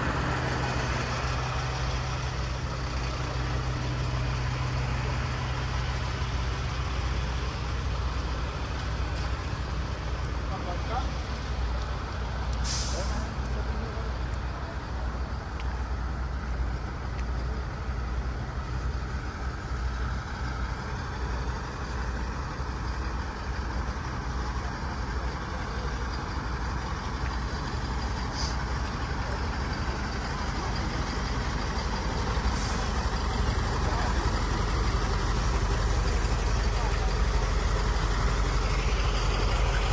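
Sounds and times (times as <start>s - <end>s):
diesel engines rumbling: 0.0s - 39.9s
air brake hisses: 12.6s - 13.4s, 28.3s - 28.7s.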